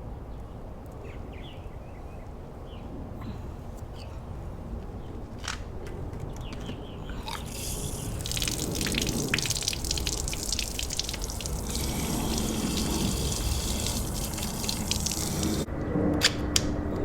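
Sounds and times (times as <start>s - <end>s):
liquid pouring and splashing: 7.2s - 15.7s.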